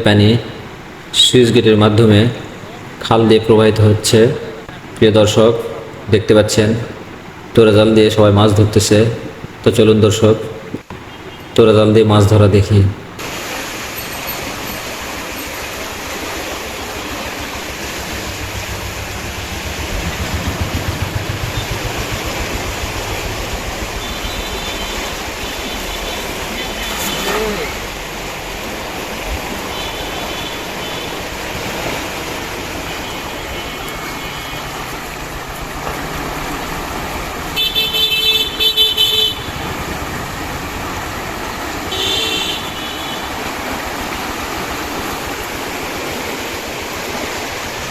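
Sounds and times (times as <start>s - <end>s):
water rushing through sluice gate: 0.0s - 47.9s
vehicle horns beeping: 10.8s - 11.7s, 23.8s - 27.9s, 29.6s - 31.2s, 32.9s - 35.1s, 37.5s - 39.7s, 41.9s - 43.5s
vehicle engine rumbling past: 16.8s - 26.6s.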